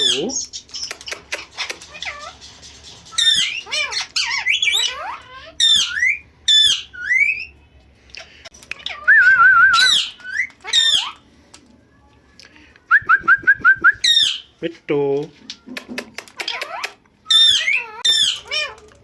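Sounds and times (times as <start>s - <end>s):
parrot squawks and chirps: 0.0s - 7.6s, 8.7s - 11.2s, 14.0s - 14.6s, 16.2s - 19.0s
parrot wavering trill: 1.4s - 7.6s, 8.8s - 11.2s, 16.4s - 19.0s.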